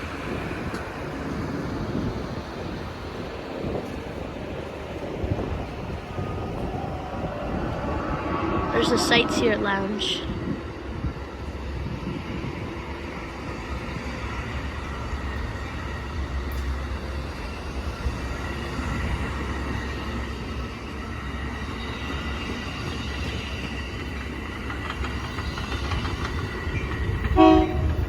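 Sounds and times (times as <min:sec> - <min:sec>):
train wheels rumbling on rail: 0:00.0 - 0:28.0
loud multi-tone horn: 0:27.4 - 0:28.0.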